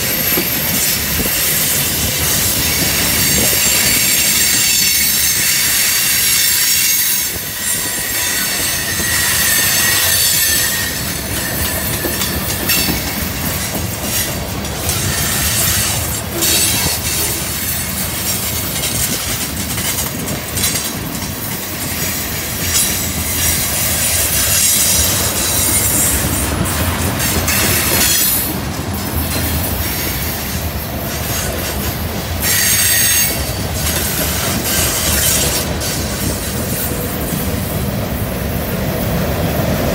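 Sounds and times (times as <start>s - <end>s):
wheel flange squeal: 0.0s - 17.8s
steel wheels rumbling on rail: 0.0s - 39.9s.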